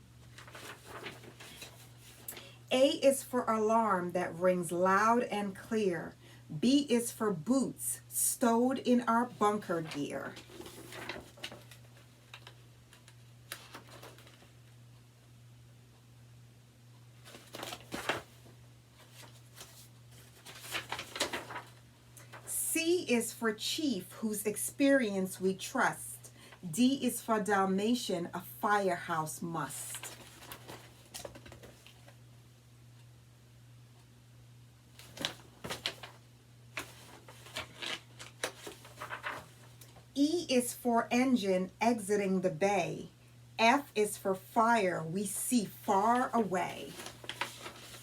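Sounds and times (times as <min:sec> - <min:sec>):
low steady hum: 0:00.0 - 0:48.0
paper pages rustling: 0:00.2 - 0:02.5, 0:09.2 - 0:14.8, 0:17.2 - 0:22.5, 0:29.8 - 0:32.2, 0:34.9 - 0:40.1, 0:45.9 - 0:48.0.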